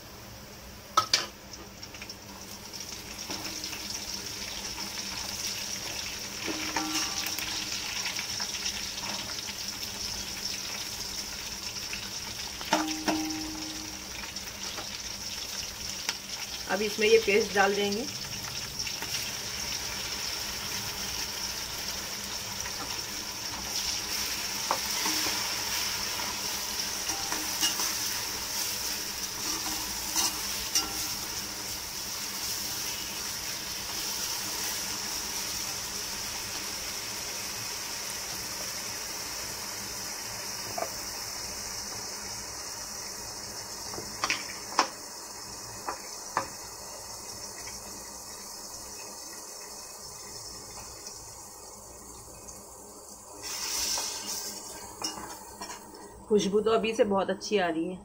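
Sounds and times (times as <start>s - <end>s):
paste sizzling in hot oil: 0.9s - 56.5s
metal spatula clinking on pot: 27.1s - 28.0s, 29.5s - 31.2s, 55.0s - 55.8s.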